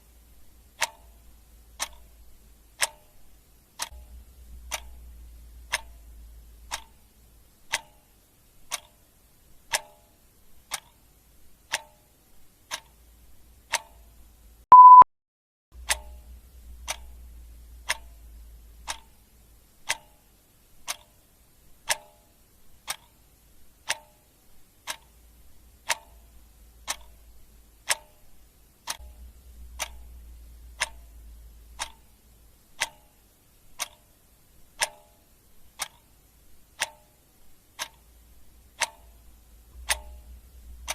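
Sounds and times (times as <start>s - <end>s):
faint low rumble: 0.0s - 7.8s, 15.8s - 19.9s, 24.5s - 34.8s, 35.4s - 40.9s
clock ticking: 0.0s - 15.0s, 15.8s - 40.9s
short high beep: 14.7s - 15.1s.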